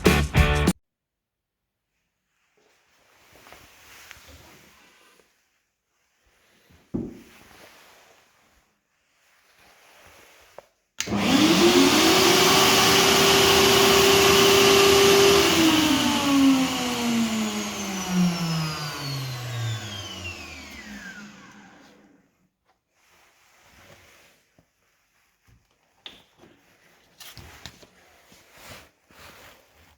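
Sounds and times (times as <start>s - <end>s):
power tool motor running: 11.0s - 22.2s
motor winding down whine: 11.1s - 22.1s.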